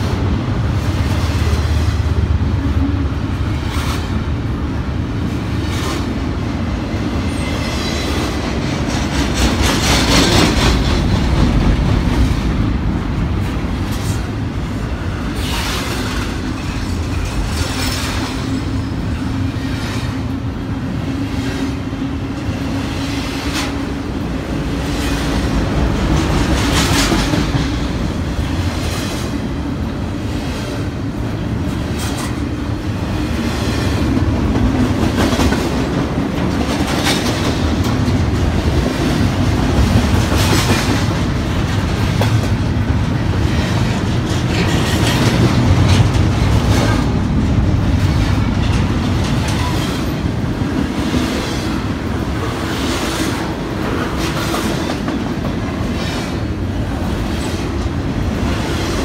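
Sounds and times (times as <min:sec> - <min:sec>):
train rumbling past: 0:00.0 - 0:59.0
wheels clacking over rail joints: 0:24.6 - 0:29.4, 0:33.4 - 0:59.0.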